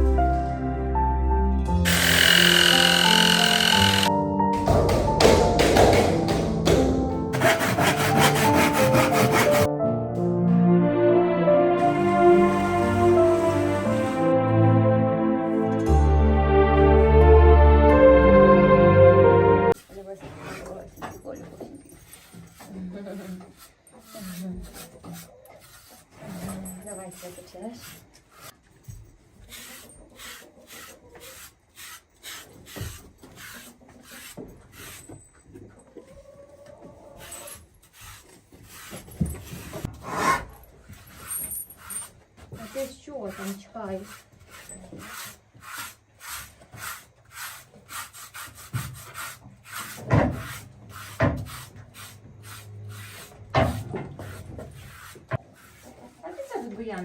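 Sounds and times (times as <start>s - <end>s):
rhythmic scraping strokes: 1.9s - 9.7s, 11.8s - 14.4s.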